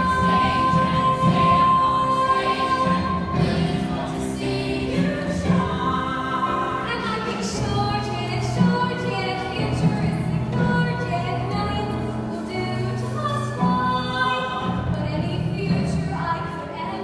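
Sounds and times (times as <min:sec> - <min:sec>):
voices singing held notes: 0:00.0 - 0:10.6
musical accompaniment: 0:00.0 - 0:17.0.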